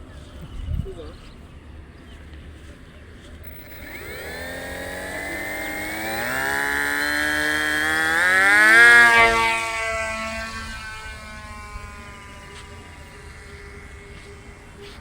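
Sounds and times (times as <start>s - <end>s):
electric motor whine rising: 3.4s - 15.0s.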